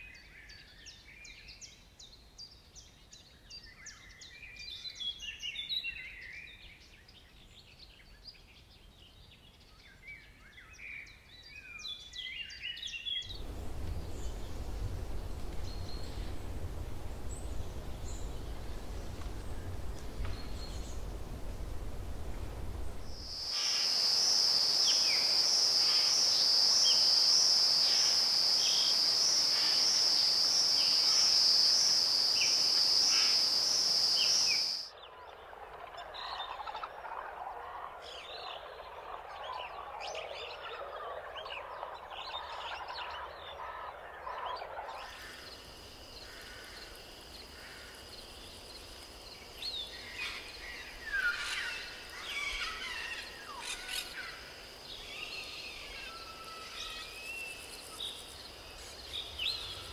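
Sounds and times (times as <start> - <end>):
chattering birdsong: 13.2 - 24.0
high-pitched pulsing insect trill: 23.1 - 34.9.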